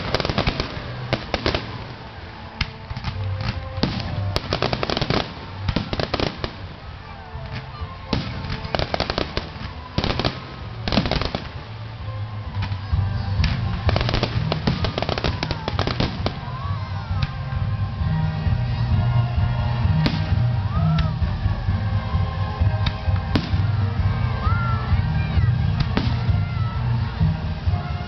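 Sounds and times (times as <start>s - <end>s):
fireworks whistling: 0.0s - 11.8s, 12.4s - 17.5s
fireworks bangs and crackling: 0.0s - 28.0s
music playing: 0.0s - 28.0s.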